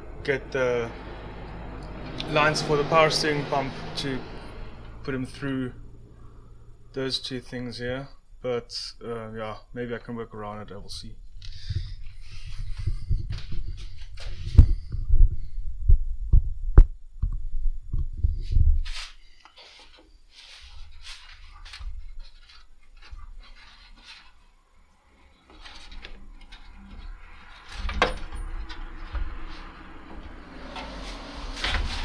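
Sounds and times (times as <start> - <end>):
metal parts knocking and clunking: 25.5 - 31.0.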